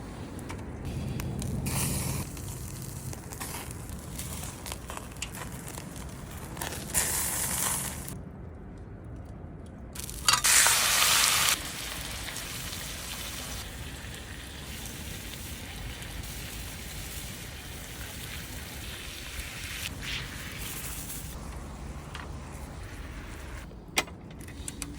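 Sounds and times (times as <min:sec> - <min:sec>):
food sizzling on grill fire: 0:00.9 - 0:08.2, 0:10.0 - 0:23.6.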